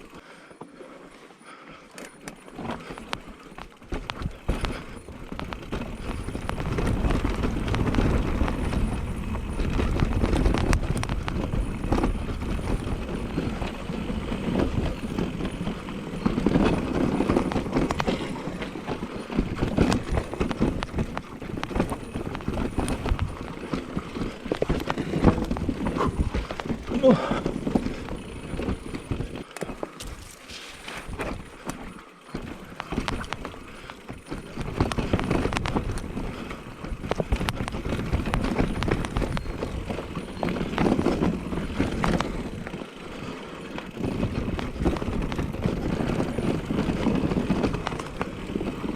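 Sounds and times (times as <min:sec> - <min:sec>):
bike tyres rumbling over rough ground: 0:01.5 - 0:48.9
bike rattling over bumps: 0:01.7 - 0:48.9.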